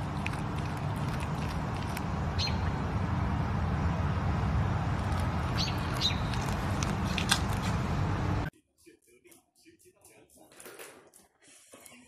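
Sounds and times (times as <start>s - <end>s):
high bird chirps: 2.3s - 2.7s, 5.5s - 6.4s.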